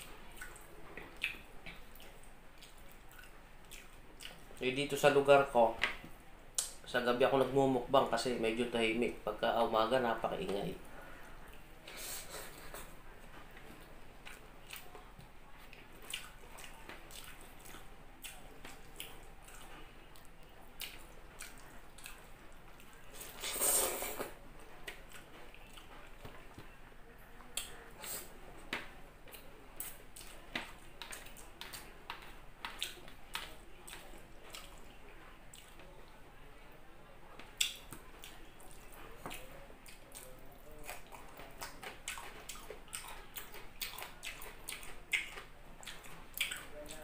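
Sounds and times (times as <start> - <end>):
person chewing with mouth clicks: 0.2 - 4.6, 13.6 - 26.7, 27.4 - 35.9, 37.6 - 47.0.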